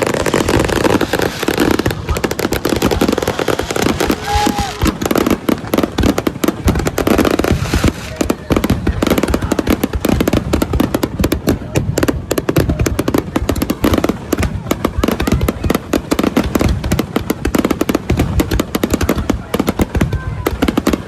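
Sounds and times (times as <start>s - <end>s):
fireworks whistle: 0.0s - 5.5s
fireworks bangs and crackles: 0.0s - 21.0s.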